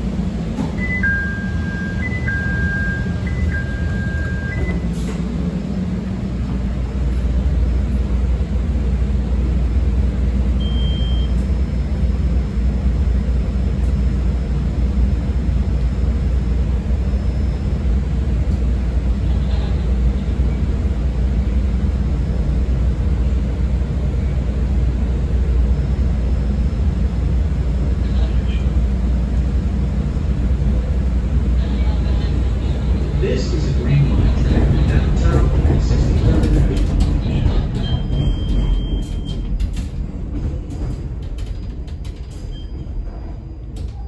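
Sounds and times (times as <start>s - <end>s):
train wheels rumbling on rail: 0.0s - 10.6s, 11.2s - 44.0s
train doors shutting click: 0.5s - 1.2s, 34.8s - 44.0s.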